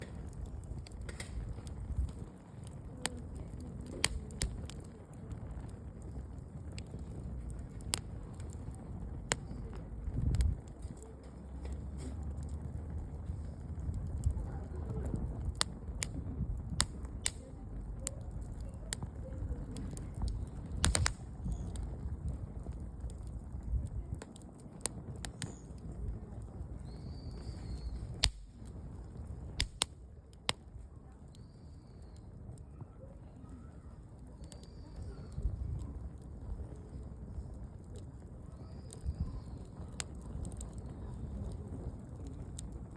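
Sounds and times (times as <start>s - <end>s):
sharp pops from fire: 0.0s - 42.9s
wood fire crackling: 0.0s - 42.9s.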